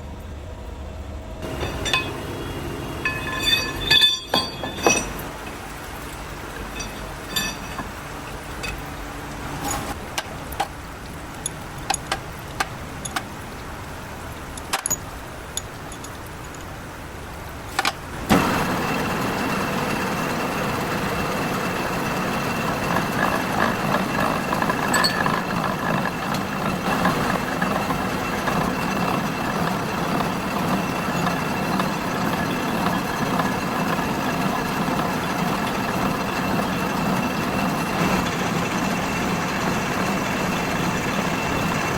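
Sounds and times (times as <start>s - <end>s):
workshop machine running: 0.0s - 15.4s, 17.0s - 41.9s
metal clinks and knocks: 1.4s - 9.0s, 11.4s - 13.3s, 14.5s - 16.8s, 22.4s - 41.9s.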